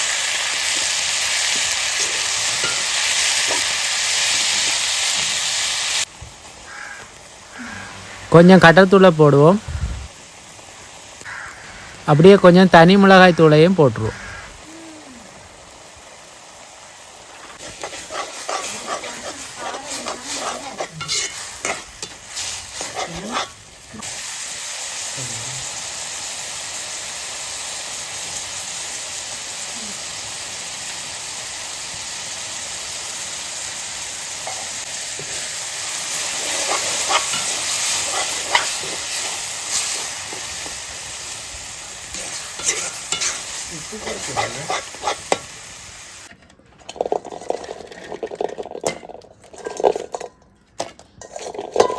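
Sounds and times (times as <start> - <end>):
chicken sizzling in a pan: 0.0 - 46.3
spoon scraping a pan: 17.6 - 23.6, 36.1 - 40.8, 42.1 - 45.5, 51.2 - 51.9.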